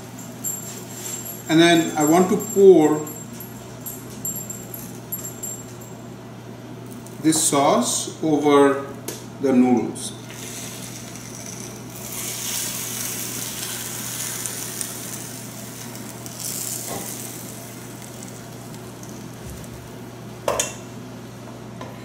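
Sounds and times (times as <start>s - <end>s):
sauce sizzling and hissing: 10.3s - 19.8s.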